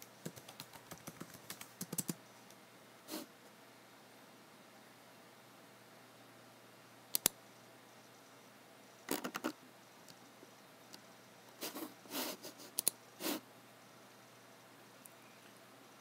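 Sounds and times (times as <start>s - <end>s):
mouse clicks: 7.1s - 7.4s, 12.8s - 13.0s.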